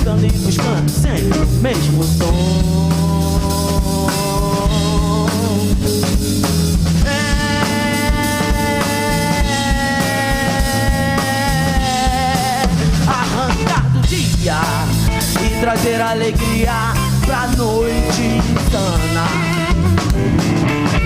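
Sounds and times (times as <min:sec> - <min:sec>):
live rock band playing: 0:00.0 - 0:21.0
electric guitar lead note: 0:02.8 - 0:12.8.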